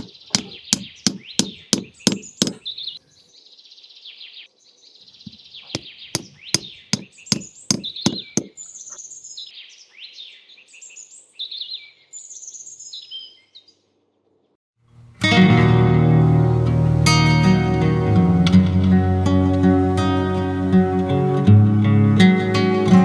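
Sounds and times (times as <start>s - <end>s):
sharp knocks: 0.0s - 2.6s, 5.7s - 8.6s
small birds chirping: 0.0s - 14.5s.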